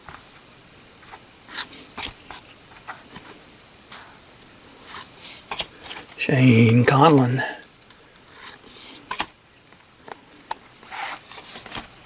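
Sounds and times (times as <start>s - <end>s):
cards scraping and flicking: 10.1s - 11.9s.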